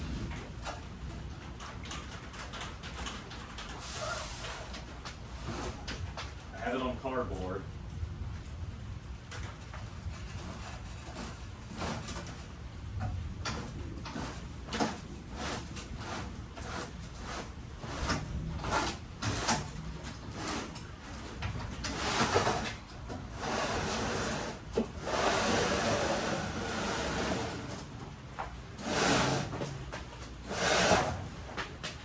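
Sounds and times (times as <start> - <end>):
generator scraping on cardboard: 3.8 - 6.0, 10.1 - 12.5, 13.5 - 27.9, 28.8 - 31.8.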